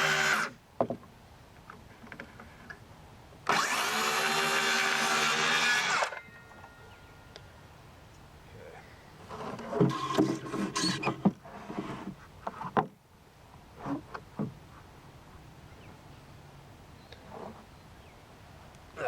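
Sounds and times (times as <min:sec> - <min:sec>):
power drill running: 0:03.5 - 0:06.2.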